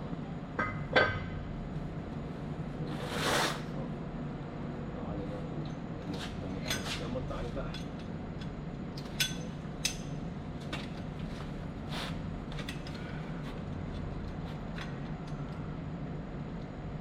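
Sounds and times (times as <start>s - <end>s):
low machinery hum: 0.0s - 17.0s
tools clinking on metal: 9.1s - 10.1s.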